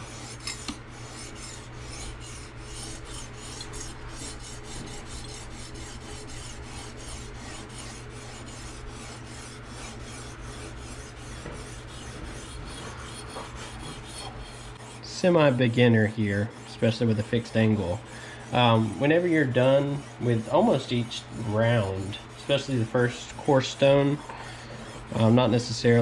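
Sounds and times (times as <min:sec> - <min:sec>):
sharpening stone rasping on knife: 0:00.2 - 0:00.8.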